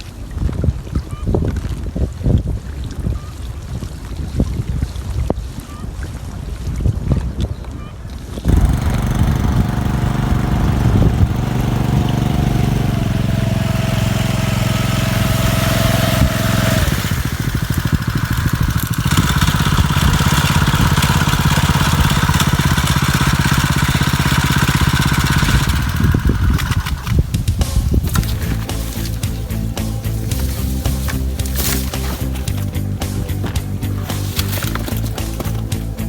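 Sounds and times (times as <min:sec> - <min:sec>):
boat engine running: 0:08.5 - 0:36.0.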